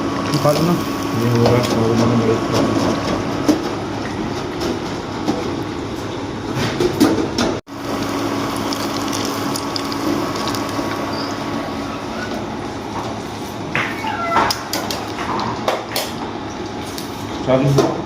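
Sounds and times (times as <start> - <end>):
food deep-frying in hot oil: 0.0 - 1.9, 7.7 - 12.9.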